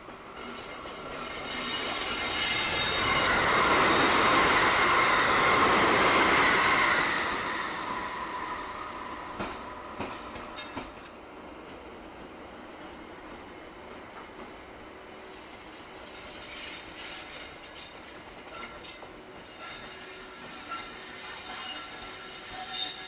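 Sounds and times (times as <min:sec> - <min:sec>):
train wheel-and-rail noise: 0:00.0 - 0:23.0
thin high squeal: 0:15.1 - 0:23.0.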